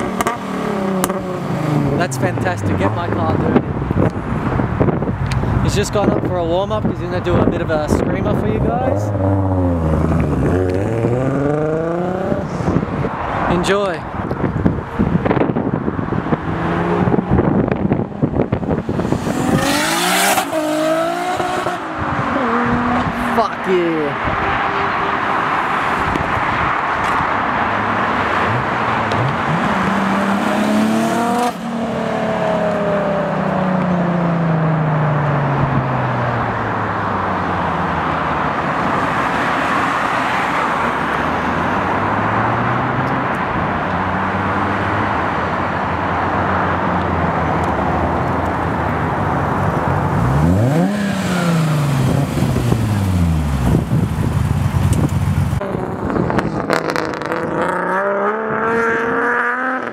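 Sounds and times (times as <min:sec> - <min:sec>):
car engine accelerating past: 0:18.8 - 0:23.4, 0:55.6 - 0:59.9.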